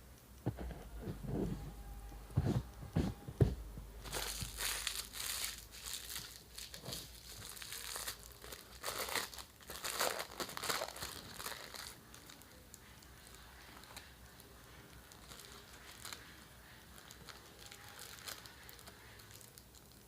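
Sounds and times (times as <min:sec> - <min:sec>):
dull handling knocks: 0:02.3 - 0:03.9
food wrapper crinkling: 0:04.0 - 0:20.0.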